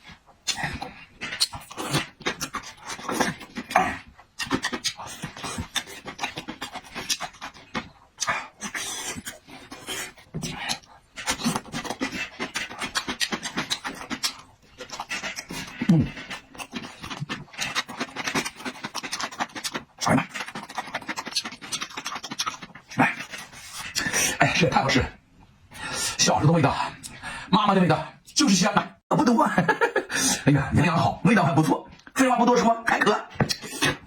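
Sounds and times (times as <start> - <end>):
wet chewing and slurping: 0.0 - 24.4.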